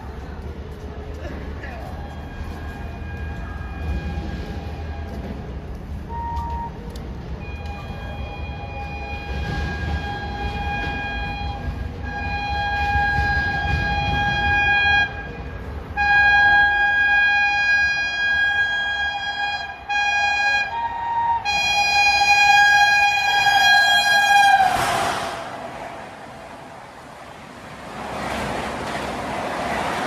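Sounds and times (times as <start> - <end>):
rush of passing train: 0.0 - 30.0
train rumble: 0.0 - 30.0
locomotive horn blasts: 2.2 - 5.3, 7.4 - 25.8.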